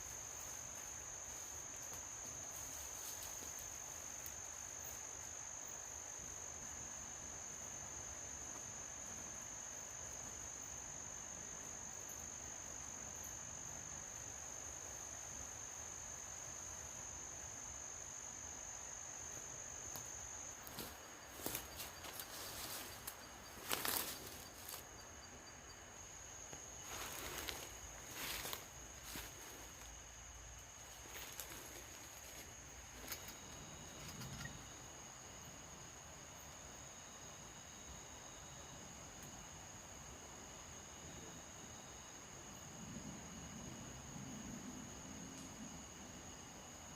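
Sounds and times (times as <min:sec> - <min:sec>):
rustling and crunching: 0:20.6 - 0:24.9, 0:26.5 - 0:30.0, 0:30.7 - 0:33.5
insect trilling: 0:20.7 - 0:29.9, 0:30.8 - 0:34.9.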